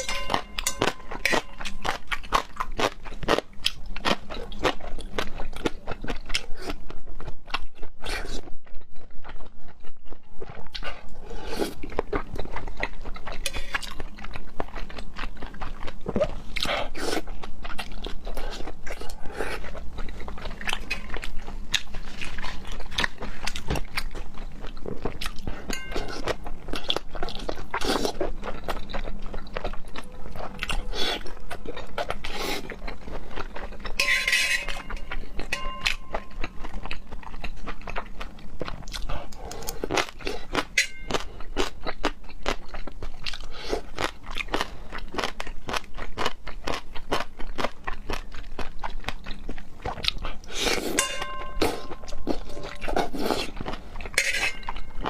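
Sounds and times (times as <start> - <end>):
wet chewing clicks and smacks: 35.1 - 50.6.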